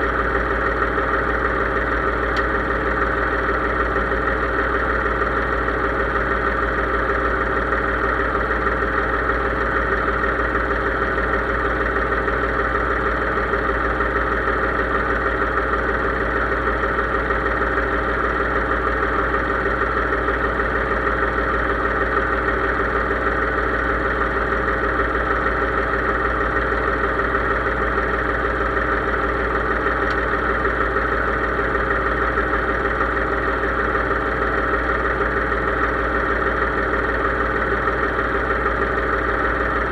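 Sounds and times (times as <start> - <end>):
tractor engine droning: 0.0 - 39.9.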